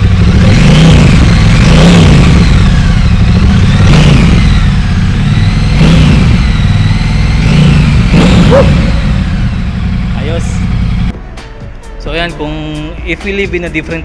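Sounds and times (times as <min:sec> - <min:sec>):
motorcycle engine revving: 0:00.0 - 0:11.1.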